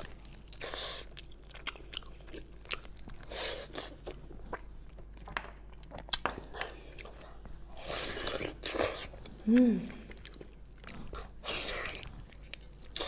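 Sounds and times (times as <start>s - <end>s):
person chewing and biting: 0.0s - 9.4s, 10.1s - 13.0s.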